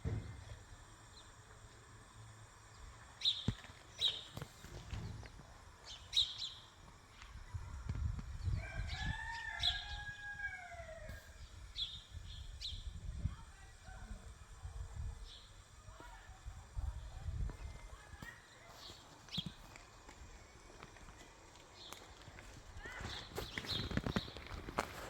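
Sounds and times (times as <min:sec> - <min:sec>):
rooster crowing: 0:08.4 - 0:11.4.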